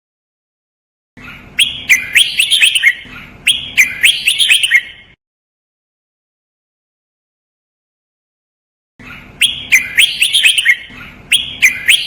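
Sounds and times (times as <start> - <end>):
bird singing whistled notes: 1.6 - 5.2, 9.4 - 12.0.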